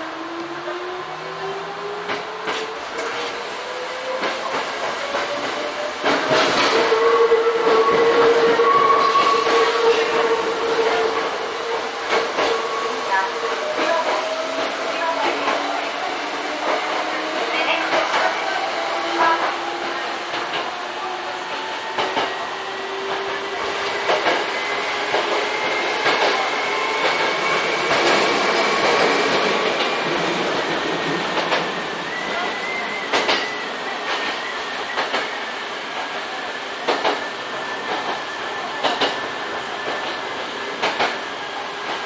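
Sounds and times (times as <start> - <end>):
train rolling rumble: 0.0 - 42.0
rail-joint clicks: 21.9 - 22.4, 23.1 - 24.5, 25.1 - 31.8, 33.1 - 35.4, 36.8 - 38.2, 38.8 - 41.2.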